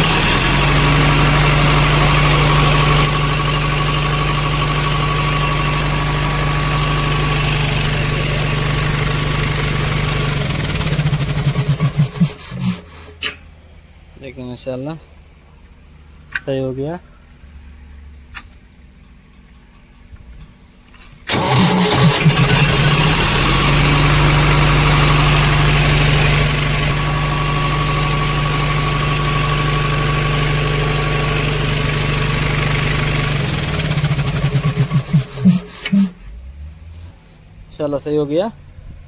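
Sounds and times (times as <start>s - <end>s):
diesel engine idling: 0.0s - 13.2s, 21.3s - 37.1s
engine shutting down shudders: 0.0s - 13.2s, 21.3s - 38.0s
starter motor cranking: 4.7s - 13.3s, 21.3s - 27.3s, 28.2s - 36.4s.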